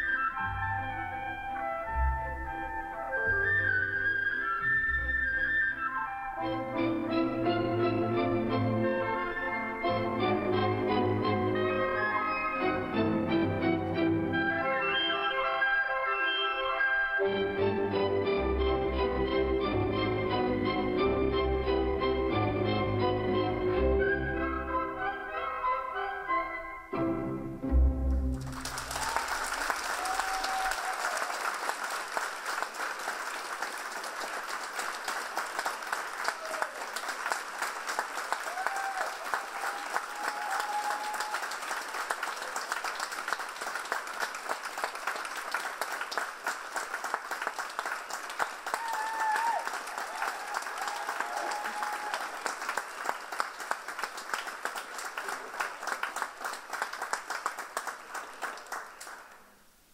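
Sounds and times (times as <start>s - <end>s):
audience applauding: 28.3s - 59.6s
short cheers: 28.7s - 31.5s, 36.2s - 37.0s, 38.4s - 41.7s, 48.6s - 52.6s.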